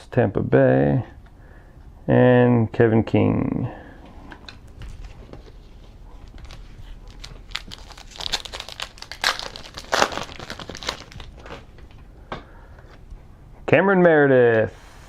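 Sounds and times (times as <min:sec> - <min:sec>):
foil wrapper tearing and crinkling: 0:06.2 - 0:11.9.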